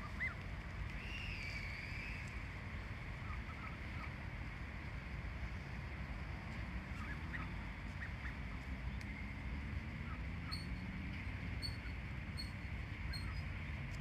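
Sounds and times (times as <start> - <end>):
steady low rumble: 0.0 - 14.0
bird high-pitched peeps: 11.6 - 13.5.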